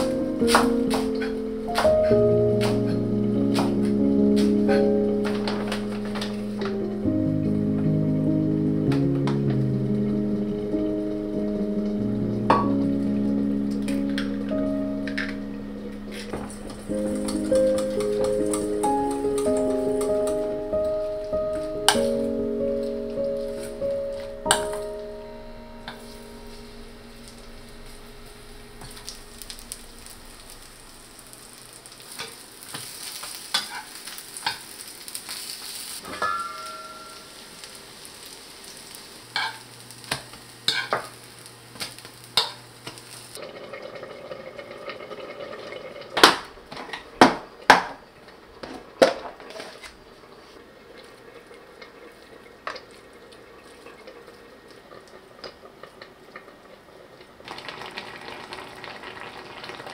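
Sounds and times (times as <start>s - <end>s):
batter sizzling in oil: 0.0s - 43.4s, 57.4s - 59.9s
utensils clinking: 13.9s - 20.5s, 36.0s - 37.3s
utensils scraping a pan: 33.5s - 34.6s, 39.4s - 39.6s.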